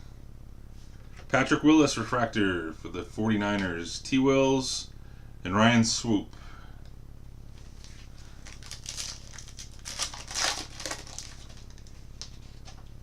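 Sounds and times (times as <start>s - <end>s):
foil pack tearing and crinkling: 7.7s - 12.8s.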